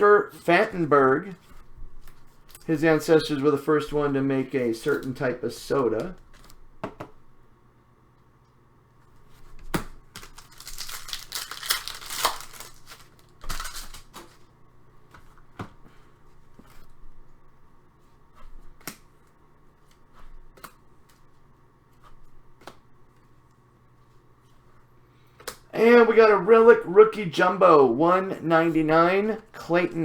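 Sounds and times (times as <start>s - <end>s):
wrapper tearing and crinkling: 10.1s - 14.4s.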